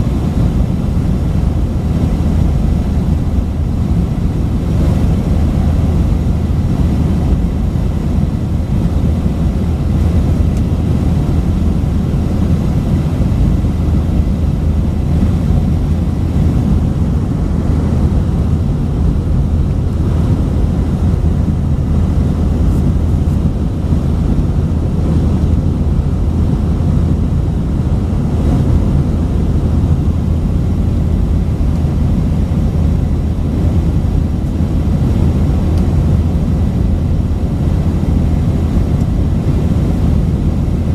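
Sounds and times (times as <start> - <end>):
jet engine drone in cabin: 0.0 - 40.9.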